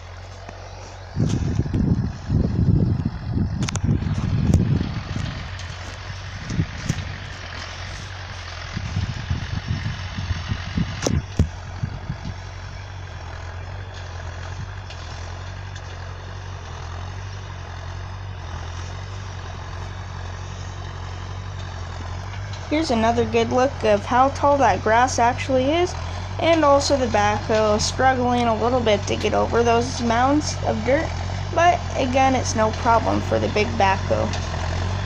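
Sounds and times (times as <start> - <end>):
backhoe engine running: 0.0 - 35.0
wind gusts on microphone: 1.1 - 12.5.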